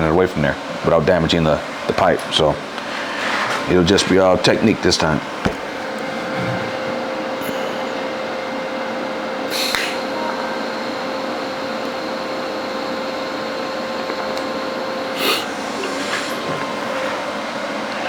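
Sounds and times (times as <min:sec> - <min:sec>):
welding machine hum and hiss: 0:01.5 - 0:18.0.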